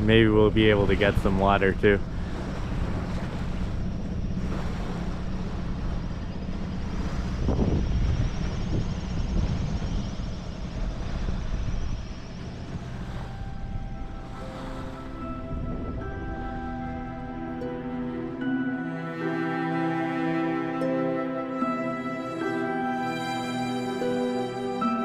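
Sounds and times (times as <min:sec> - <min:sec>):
wind noise on microphone: 0:00.0 - 0:18.8
diesel engine low hum: 0:00.0 - 0:25.0
music: 0:12.8 - 0:25.0.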